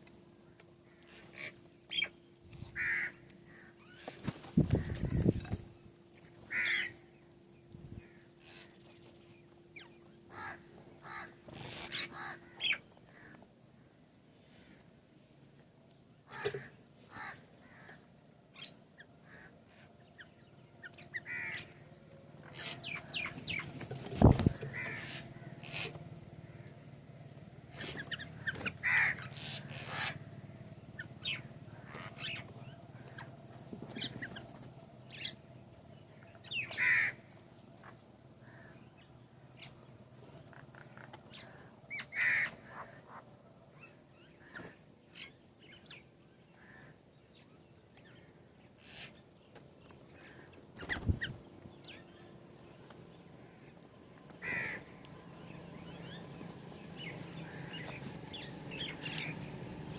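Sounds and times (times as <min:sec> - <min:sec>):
harsh bird call: 0:27.7 - 0:30.2.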